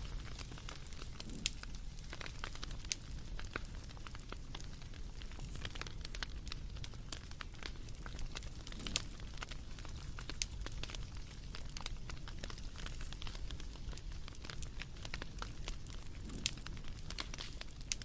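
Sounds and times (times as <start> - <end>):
low rumble of burning: 0.0 - 18.0
wood fire crackling and popping: 0.0 - 18.0.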